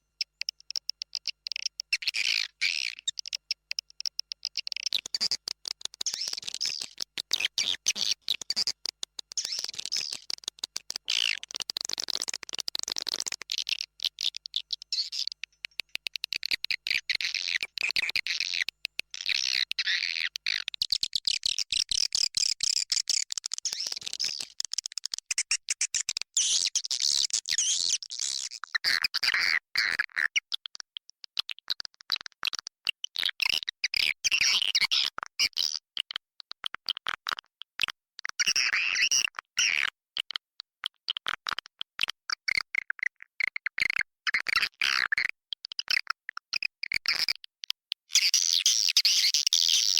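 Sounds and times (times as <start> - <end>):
swiftlets twittering and clicking: 0.2 - 28.1.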